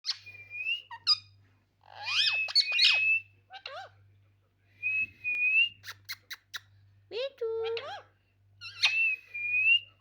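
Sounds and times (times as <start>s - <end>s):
parrot whistling and squawking: 0.0s - 4.0s, 8.6s - 9.2s
faint low hum: 0.0s - 10.0s.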